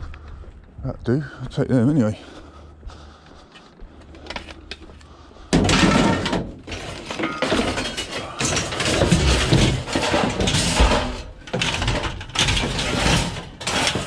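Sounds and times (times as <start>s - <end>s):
scrap metal clanking: 5.6s - 14.0s.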